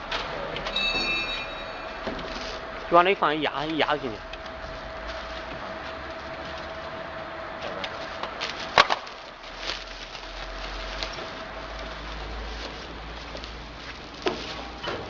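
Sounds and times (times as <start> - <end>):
objects knocking and clattering: 8.2 - 9.2.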